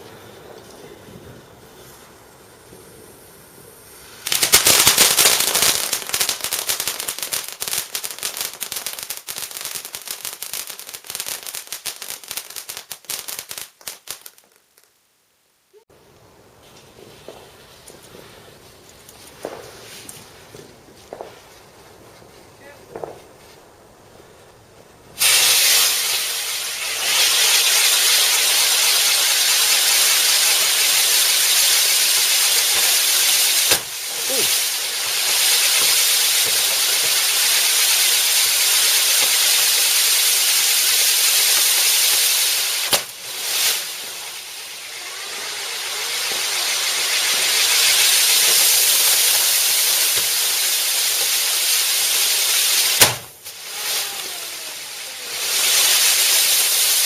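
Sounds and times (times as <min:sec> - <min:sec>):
firework fountain hissing: 0:00.0 - 0:14.9, 0:25.1 - 0:57.0.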